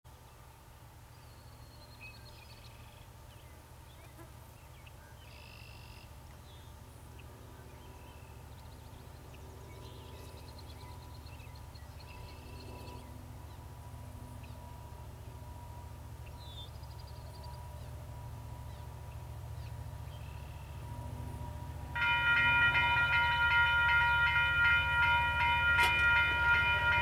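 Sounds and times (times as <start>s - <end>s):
small birds singing: 16.2s - 18.0s.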